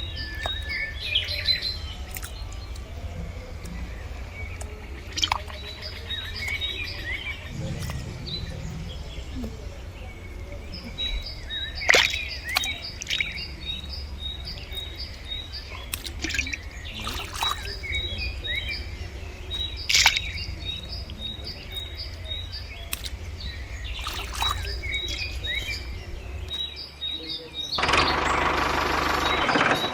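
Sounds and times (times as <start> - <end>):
low steady hum: 0.0 - 29.6
birds chirping: 0.0 - 29.9
loud rushing noise: 7.5 - 10.6.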